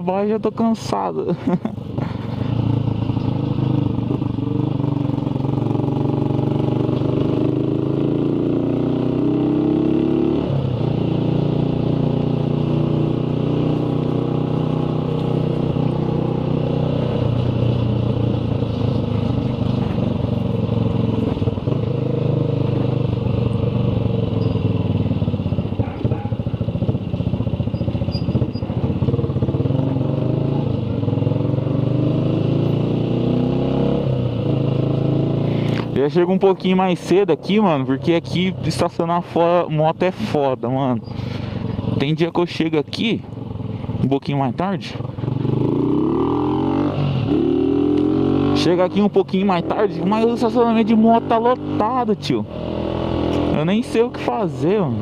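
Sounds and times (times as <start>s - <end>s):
motorcycle engine running: 0.0s - 55.0s
road and wind noise: 0.0s - 55.0s.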